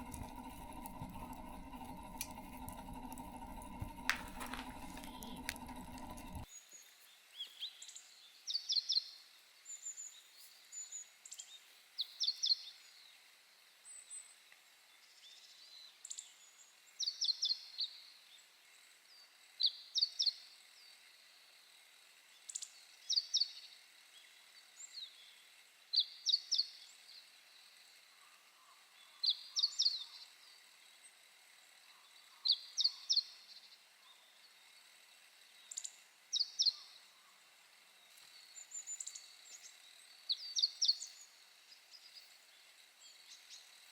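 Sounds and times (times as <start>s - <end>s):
faint outdoor background noise: 0.0s - 43.9s
small bird singing: 38.0s - 43.8s.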